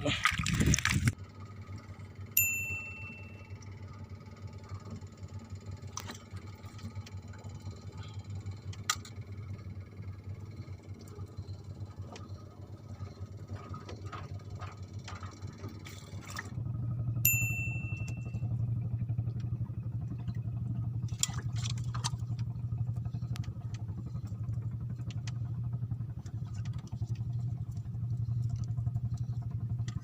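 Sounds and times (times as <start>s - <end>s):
steady low hum: 0.0s - 30.0s
bright bell-like ding: 2.4s - 3.6s, 17.2s - 18.4s.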